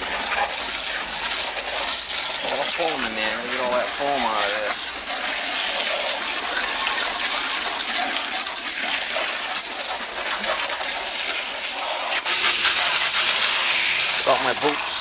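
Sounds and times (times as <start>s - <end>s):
water jet spraying on metal coil: 0.0s - 15.0s.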